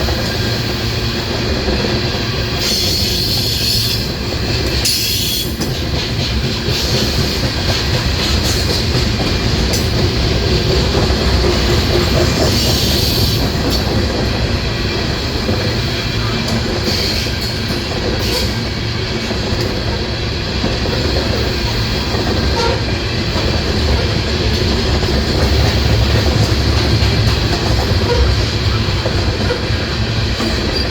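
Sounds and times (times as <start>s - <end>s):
train wheels rumbling on rails: 0.0s - 30.9s
wheels clicking over rail joints: 19.2s - 30.9s.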